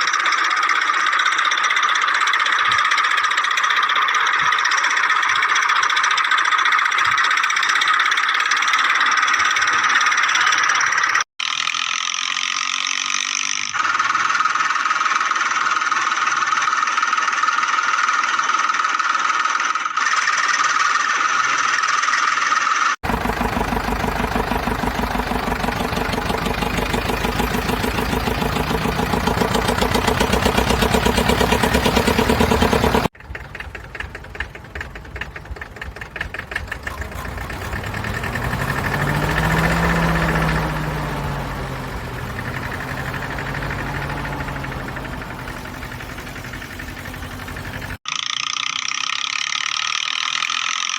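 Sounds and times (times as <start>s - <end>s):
tractor engine knocking: 0.0s - 11.2s, 23.0s - 48.0s.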